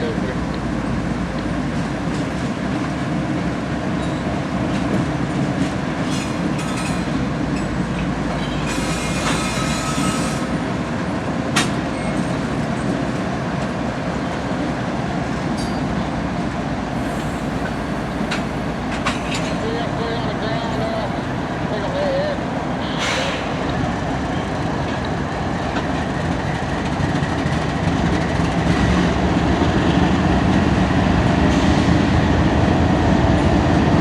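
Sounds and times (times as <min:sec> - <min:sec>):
freight train wheels rumbling: 0:00.0 - 0:34.0
train wheel squeal: 0:04.0 - 0:04.3, 0:06.1 - 0:07.7, 0:08.4 - 0:10.6.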